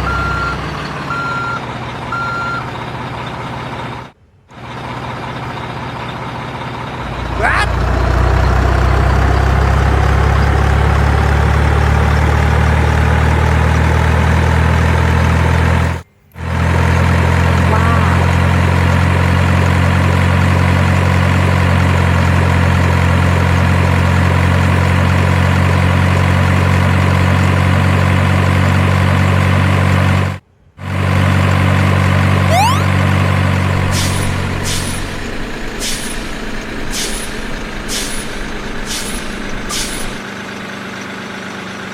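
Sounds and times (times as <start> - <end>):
loud low engine drone: 4.5 - 14.1, 16.4 - 21.8, 32.3 - 40.2.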